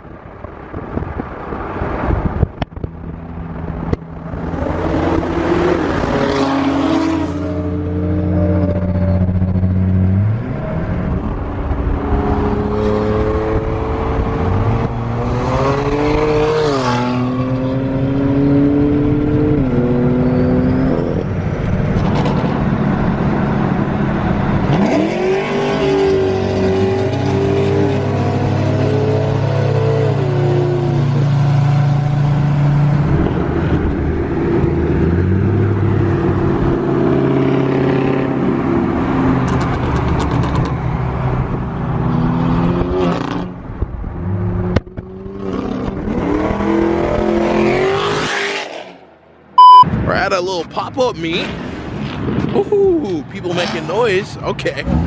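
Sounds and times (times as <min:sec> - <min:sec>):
car engine revving hard: 0:24.7 - 0:28.8.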